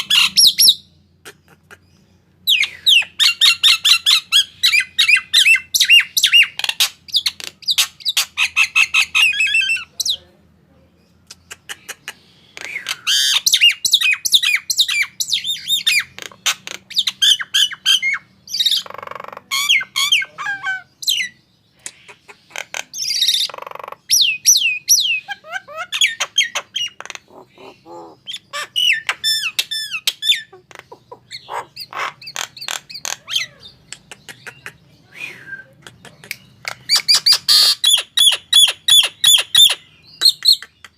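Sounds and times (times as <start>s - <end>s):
myna whistling and squawking: 11.5s - 40.9s.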